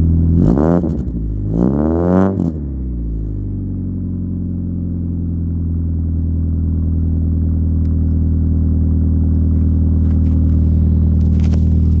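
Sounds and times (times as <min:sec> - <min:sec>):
car engine idling: 0:00.0 - 0:00.4, 0:02.5 - 0:12.0.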